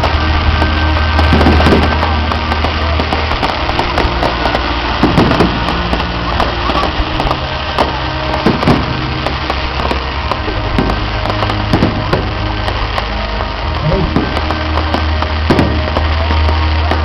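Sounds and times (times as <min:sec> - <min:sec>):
fireworks crackling and popping: 0:00.0 - 0:17.0
low hum: 0:12.3 - 0:15.2
heavy firework thumps: 0:13.7 - 0:16.2.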